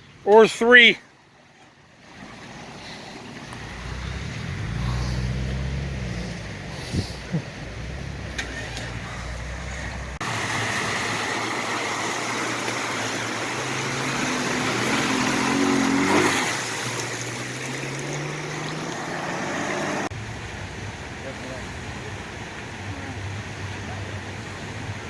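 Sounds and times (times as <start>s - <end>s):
rushing water: 0.0s - 25.0s
off-road vehicle engine revving: 2.2s - 20.8s.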